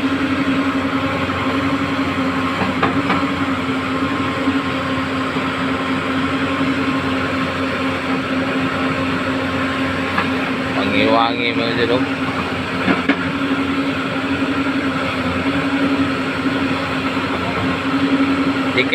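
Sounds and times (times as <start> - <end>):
diesel engine running: 0.0 - 18.9.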